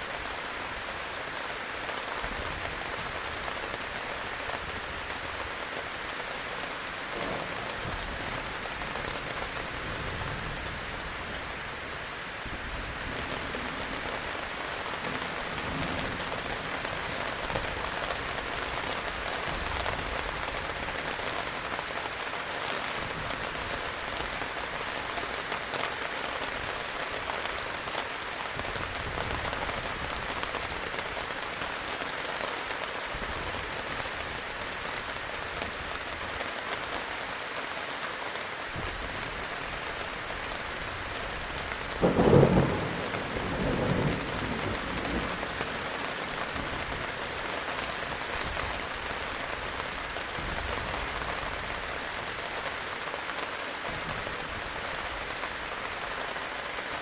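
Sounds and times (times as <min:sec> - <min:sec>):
heavy rain hissing: 0:00.0 - 0:57.0
loud rumble of thunder: 0:42.0 - 0:45.8.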